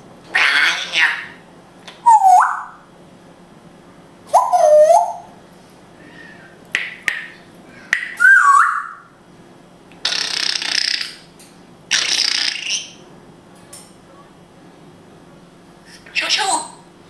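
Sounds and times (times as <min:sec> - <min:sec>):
parrot whistling call: 0:02.0 - 0:02.8, 0:04.3 - 0:05.3, 0:08.0 - 0:09.1
parrot harsh hissing: 0:10.0 - 0:11.1.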